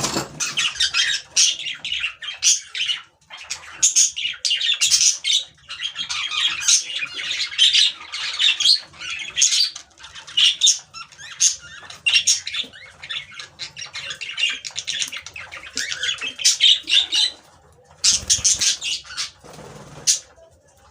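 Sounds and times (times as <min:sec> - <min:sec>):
cage birds chirping and squawking: 0:00.0 - 0:20.9.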